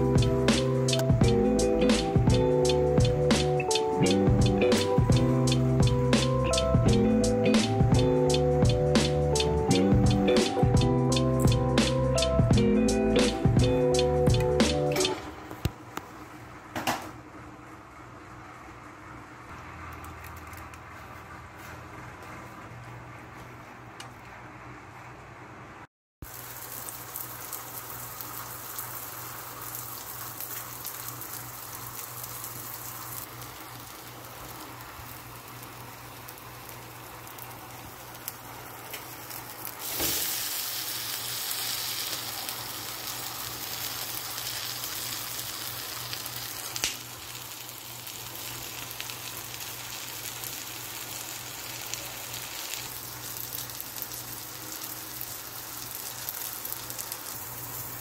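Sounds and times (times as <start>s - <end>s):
pancake sizzling in oil: 26.2s - 58.0s.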